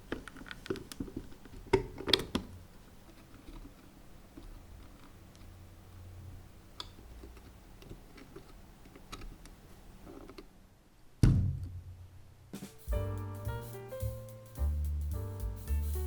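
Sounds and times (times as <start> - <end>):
loud thump: 11.2 - 12.0.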